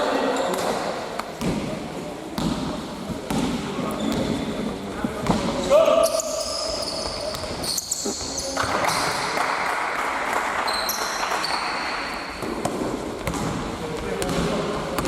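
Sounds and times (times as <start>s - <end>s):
sneakers squeaking on floor: 0.2s - 1.6s, 3.2s - 9.2s, 10.6s - 15.0s
basketball bouncing: 2.4s - 4.4s, 5.0s - 5.5s, 6.9s - 7.7s, 12.4s - 15.0s.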